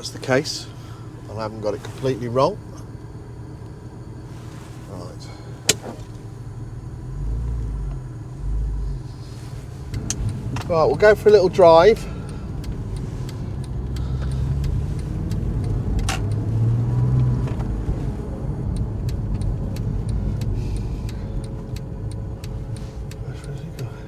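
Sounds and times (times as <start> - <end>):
car engine pulling away: 0.0 - 24.0
light clicks and rattles: 8.9 - 24.0.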